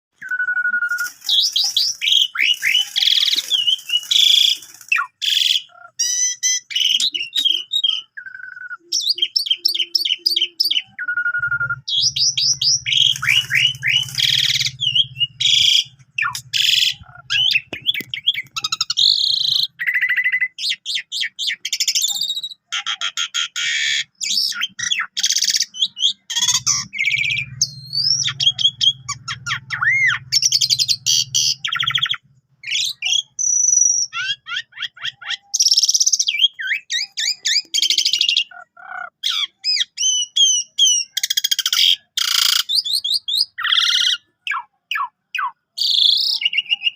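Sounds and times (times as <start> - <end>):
starling singing varied song: 0.2 - 22.4.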